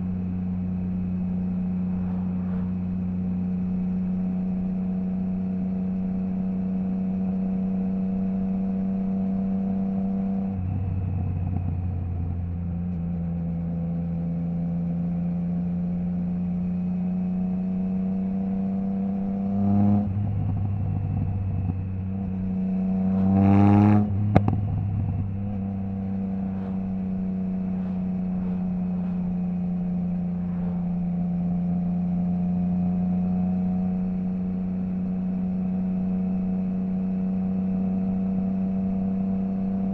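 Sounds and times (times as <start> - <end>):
motorcycle engine revving: 0.0 - 39.9
exhaust crack: 20.0 - 32.2.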